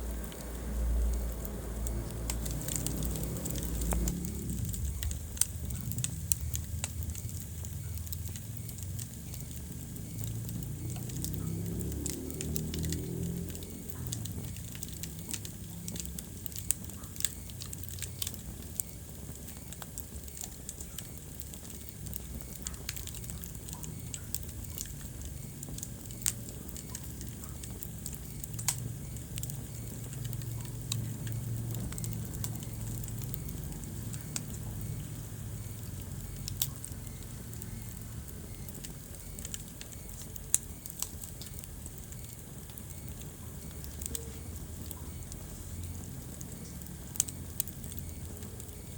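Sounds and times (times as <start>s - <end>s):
fire rumbling in fireplace: 0.0s - 48.9s
logs crackling and popping: 0.0s - 48.9s.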